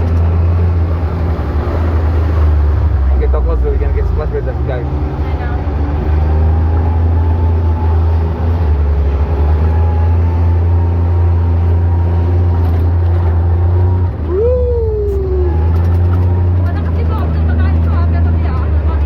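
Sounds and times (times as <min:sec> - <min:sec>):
vehicle engine droning: 0:00.0 - 0:19.0
rising whine: 0:13.5 - 0:16.6.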